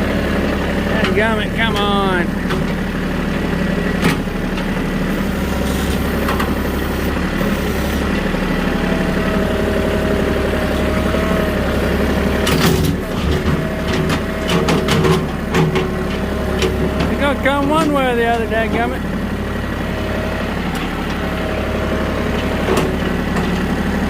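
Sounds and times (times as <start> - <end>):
vehicle engine drone: 0.0 - 24.0
metal clanks and knocks: 12.4 - 18.9.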